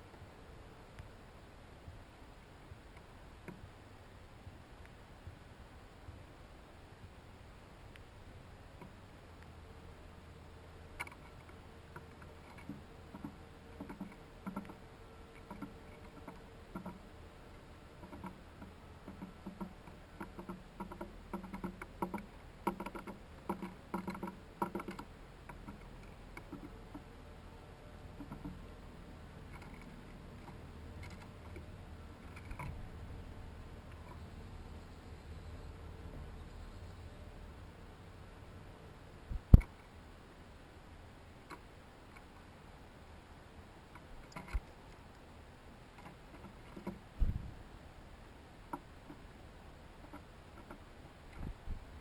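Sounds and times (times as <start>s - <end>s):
faint low hum: 0.0s - 52.0s
animals tapping at a feeder: 11.0s - 17.1s, 18.0s - 27.1s, 28.2s - 28.7s, 29.4s - 32.8s, 46.0s - 47.2s, 50.0s - 51.5s.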